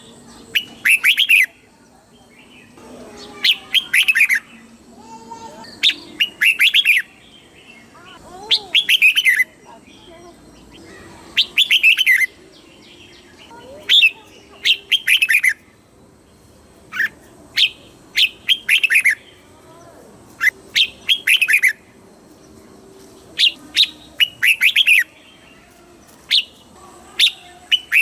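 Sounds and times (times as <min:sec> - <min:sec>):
bird singing: 0:00.0 - 0:28.0.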